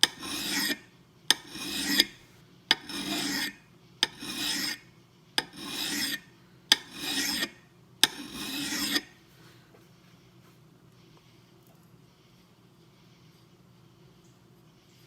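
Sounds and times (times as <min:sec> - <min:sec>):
file clicking on steel: 0:00.0 - 0:04.8, 0:05.4 - 0:09.1
file rasping on steel: 0:00.0 - 0:09.2.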